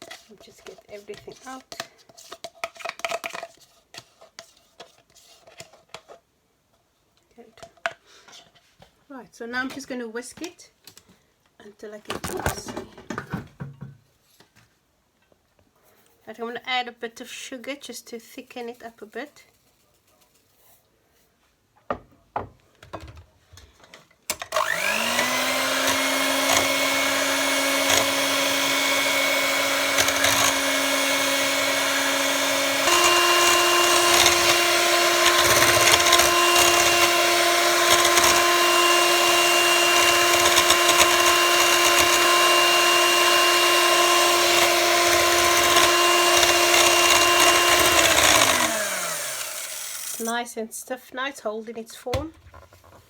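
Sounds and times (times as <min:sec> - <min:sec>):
electric mixer whisking cream: 0:24.4 - 0:50.4.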